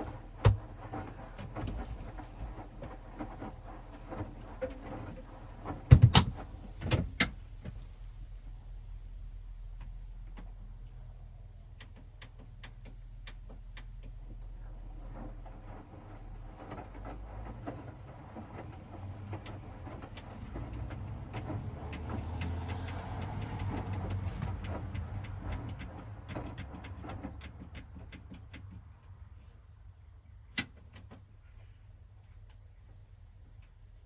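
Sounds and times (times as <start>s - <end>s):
small clicks and knocks: 11.6s - 15.8s, 16.6s - 29.4s
washing machine drum turning: 18.9s - 28.5s.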